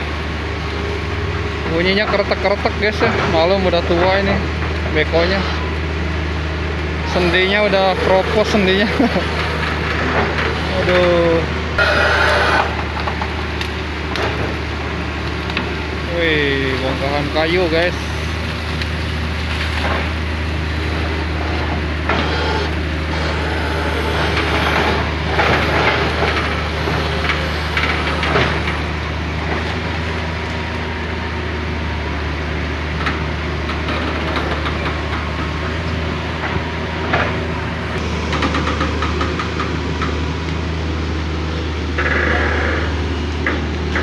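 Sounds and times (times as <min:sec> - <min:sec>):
excavator diesel engine running: 0:00.0 - 0:44.0
boom joints creaking and knocking: 0:21.3 - 0:28.8.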